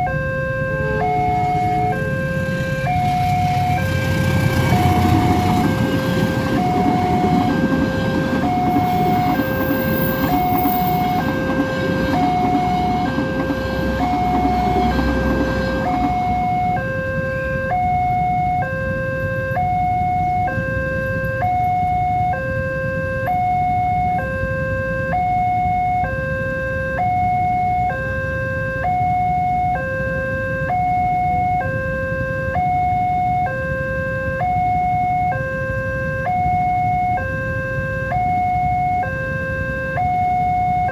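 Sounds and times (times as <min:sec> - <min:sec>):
train rumbling past: 0:00.0 - 0:17.9
level crossing two-tone alarm: 0:00.0 - 0:40.9.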